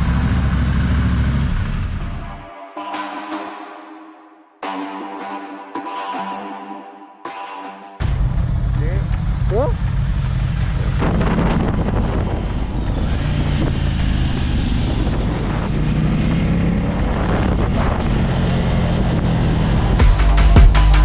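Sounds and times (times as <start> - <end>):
motorcycle engine running: 0.0 - 2.5, 8.0 - 21.0
electronic music with heavy beat: 2.4 - 9.8, 20.0 - 21.0
wind noise on microphone: 10.6 - 20.0.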